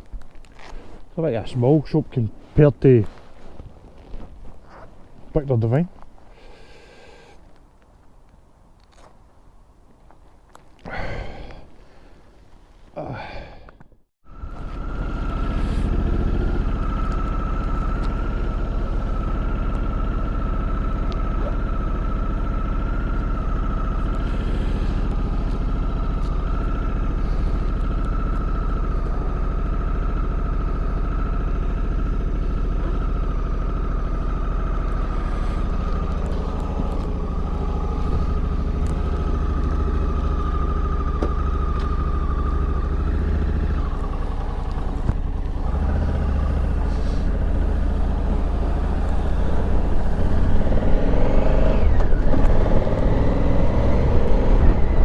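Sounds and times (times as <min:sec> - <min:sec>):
motorcycle engine and road rumble: 0:00.0 - 0:55.0
high whine: 0:14.2 - 0:55.0.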